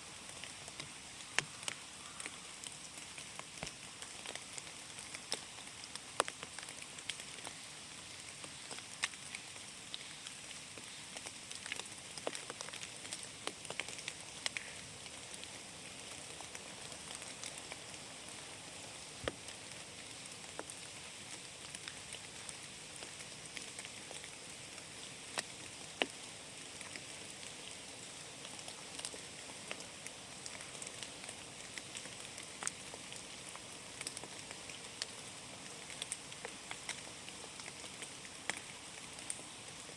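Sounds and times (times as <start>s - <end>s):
rain hissing in a forest: 0.0s - 39.9s
raindrops ticking: 0.2s - 7.6s, 28.4s - 39.9s.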